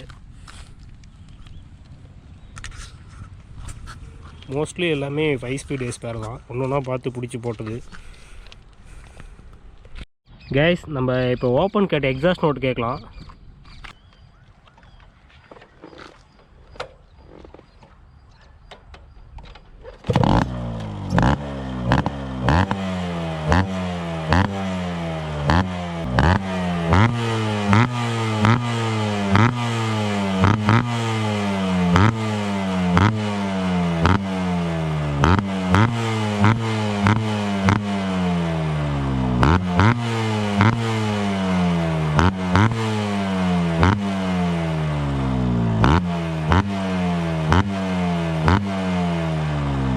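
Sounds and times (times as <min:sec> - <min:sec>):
motorcycle engine revving: 0:20.0 - 0:49.9.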